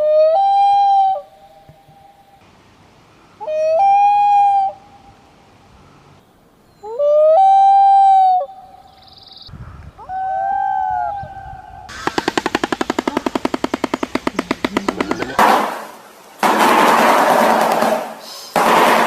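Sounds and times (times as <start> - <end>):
loon wailing call: 0.0 - 2.4, 3.4 - 5.2, 6.8 - 9.4, 10.0 - 12.1
stork bill clattering: 11.9 - 19.0.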